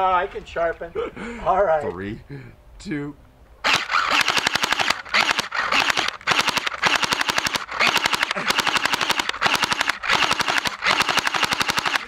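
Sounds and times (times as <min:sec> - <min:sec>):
airsoft gun firing bursts: 0:03.6 - 0:12.0.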